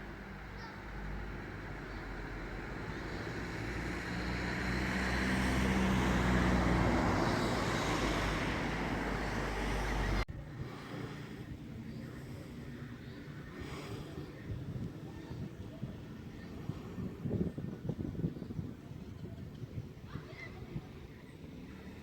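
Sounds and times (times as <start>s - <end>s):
vehicle engine passing: 0.0s - 14.6s.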